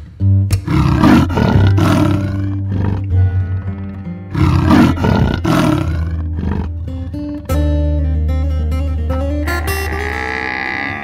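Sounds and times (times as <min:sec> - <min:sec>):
background music with bass line: 0:00.0 - 0:11.0
leopard roaring: 0:00.6 - 0:07.6, 0:09.5 - 0:11.0.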